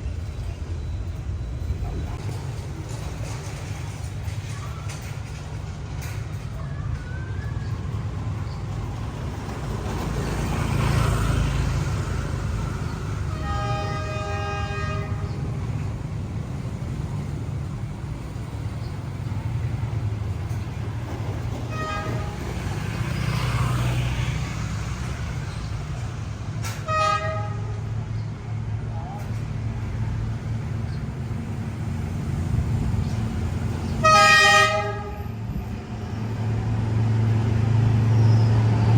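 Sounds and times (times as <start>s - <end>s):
train rumbling on the line: 0.0s - 38.9s
train horn: 13.3s - 15.4s, 21.7s - 22.4s, 26.8s - 27.9s, 34.0s - 35.4s.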